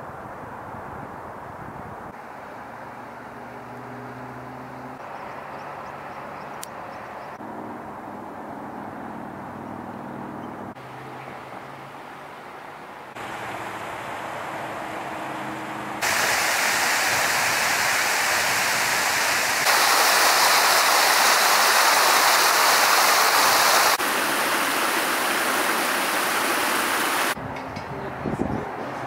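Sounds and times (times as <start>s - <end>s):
rushing water: 11.9s - 27.4s.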